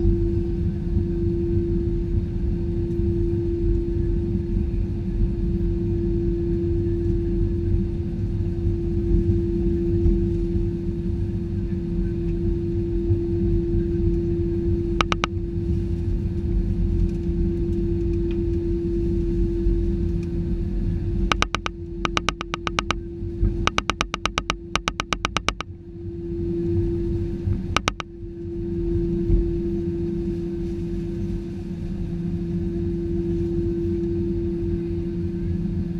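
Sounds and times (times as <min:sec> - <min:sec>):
fast even clicking: 0:15.0 - 0:15.3, 0:21.3 - 0:23.0, 0:23.7 - 0:25.6, 0:27.8 - 0:28.0
sharp clicks: 0:15.0 - 0:15.3, 0:21.3 - 0:23.0, 0:23.7 - 0:25.6, 0:27.8 - 0:28.0.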